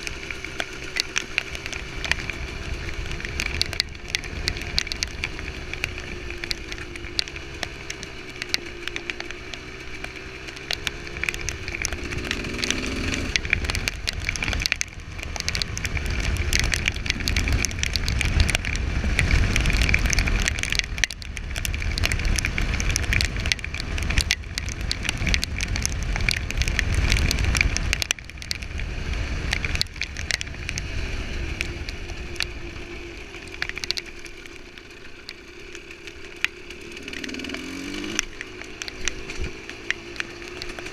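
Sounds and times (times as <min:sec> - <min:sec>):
two-stroke engine revving: 0:00.0 - 0:20.6, 0:35.4 - 0:40.9
sharp crackles: 0:00.0 - 0:40.9
wind rumble on microphone: 0:10.6 - 0:35.4, 0:37.0 - 0:40.9.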